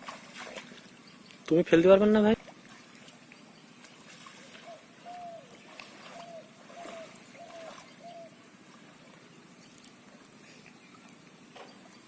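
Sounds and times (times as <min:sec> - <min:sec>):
faint outdoor background: 0:00.0 - 0:12.0
bird whistling: 0:04.7 - 0:05.5, 0:06.2 - 0:08.4.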